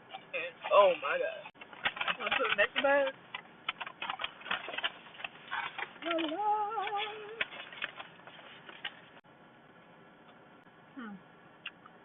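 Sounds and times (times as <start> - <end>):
woman humming: 6.0 - 7.4, 10.9 - 11.3.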